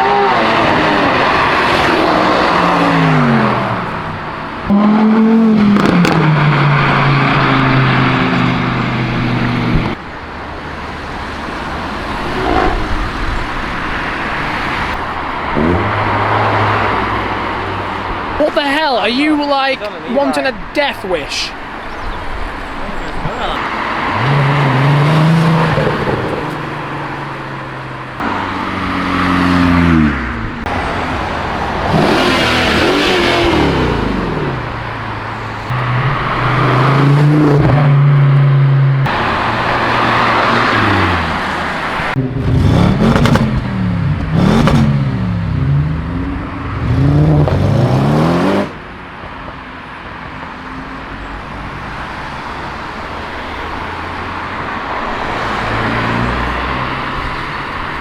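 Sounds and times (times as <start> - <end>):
cars accelerating past: 0.0 - 20.2, 21.1 - 58.0
steady traffic noise: 0.0 - 58.0
quick hard engine revs: 39.0 - 48.8.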